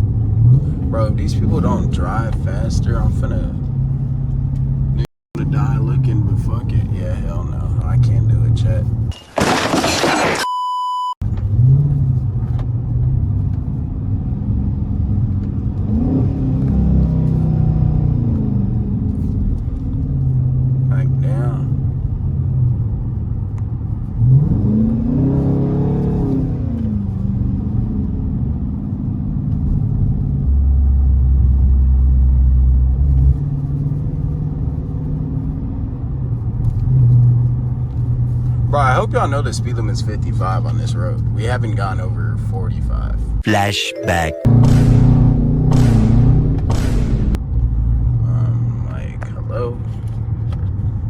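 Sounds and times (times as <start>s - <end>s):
car engine cruising: 0.0s - 10.1s, 11.2s - 43.5s, 44.1s - 51.0s
electronic beep tone: 10.4s - 11.2s
deeper hum: 44.5s - 47.5s.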